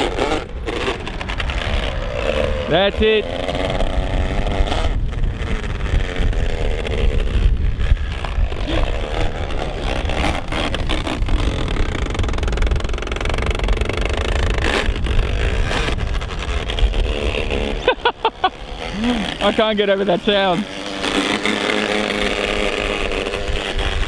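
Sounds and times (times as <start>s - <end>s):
electric toy truck drivetrain whirring: 0.0s - 24.0s.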